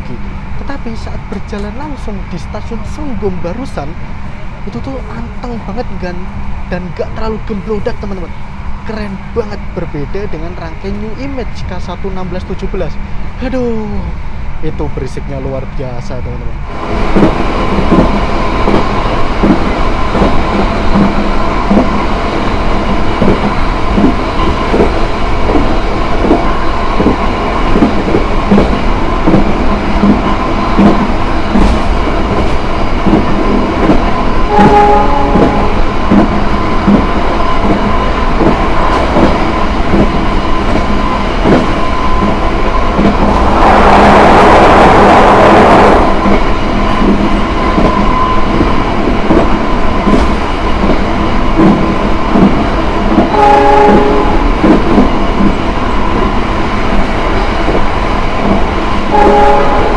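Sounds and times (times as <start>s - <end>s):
train rumble: 0.0s - 59.9s
loud rushing noise: 41.6s - 48.0s.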